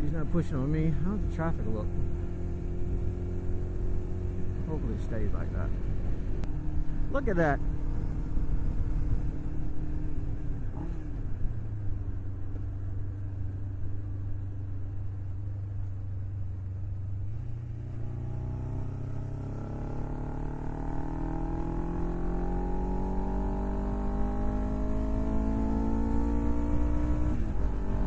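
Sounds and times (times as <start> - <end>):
low wind rumble: 0.0 - 28.0
motorcycle engine revving: 1.0 - 11.9, 16.9 - 28.0.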